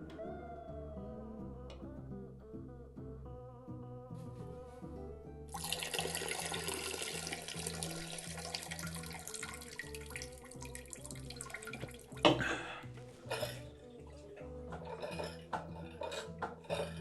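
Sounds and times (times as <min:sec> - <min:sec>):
background music: 0:00.0 - 0:17.0
tap water running into sink: 0:05.6 - 0:12.6.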